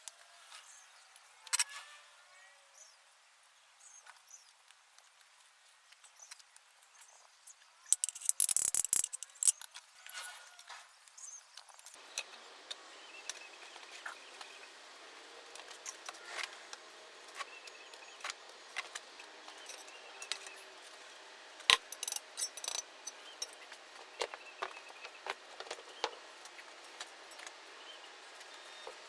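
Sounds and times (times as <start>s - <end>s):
small hard objects clicking: 7.9s - 9.9s.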